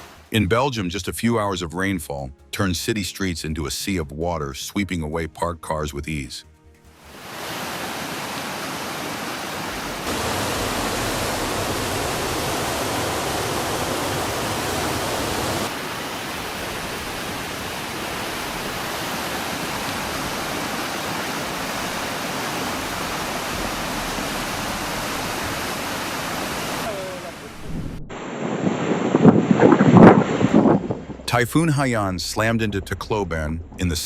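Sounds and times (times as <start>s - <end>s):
floodwater roaring: 7.0s - 34.0s.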